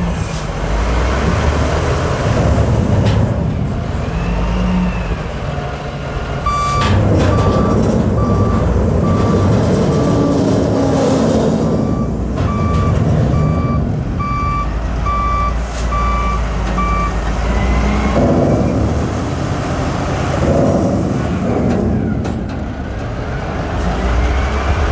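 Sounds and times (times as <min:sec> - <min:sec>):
heavy engine rumbling: 0:00.0 - 0:24.9
reversing alarm beeping: 0:06.4 - 0:10.5, 0:11.6 - 0:18.0.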